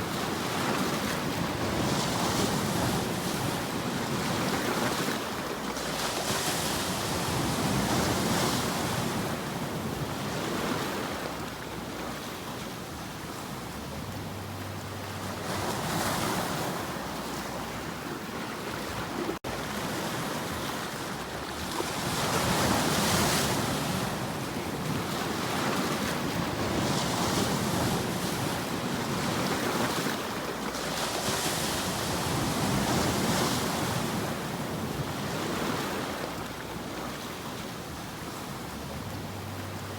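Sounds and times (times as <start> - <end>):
ocean waves washing on shore: 0.0 - 39.9.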